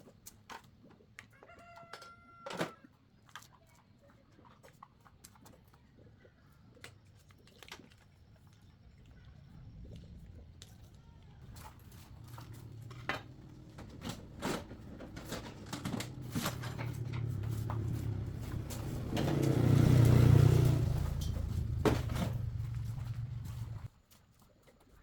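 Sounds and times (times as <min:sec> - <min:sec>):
low engine hum: 0:09.3 - 0:23.9
metal tools clinking: 0:12.2 - 0:23.8.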